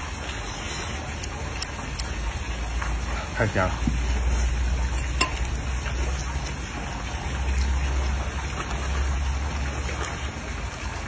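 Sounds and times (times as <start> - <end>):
man chewing food: 0.0 - 6.6.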